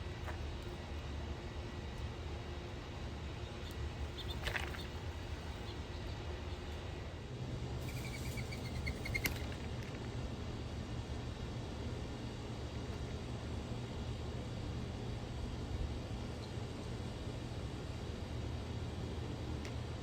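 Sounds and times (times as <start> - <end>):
bird calling: 4.1 - 6.2, 7.8 - 9.6.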